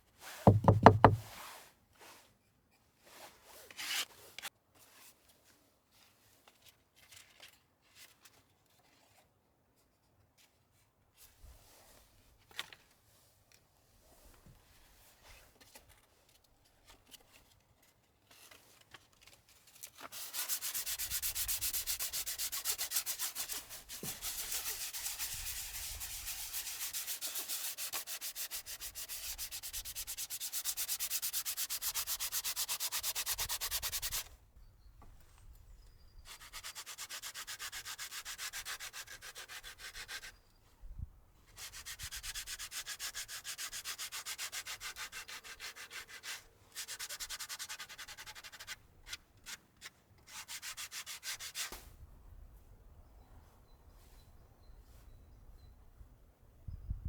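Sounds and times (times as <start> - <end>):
sanding scraping hiss: 20.1 - 34.2.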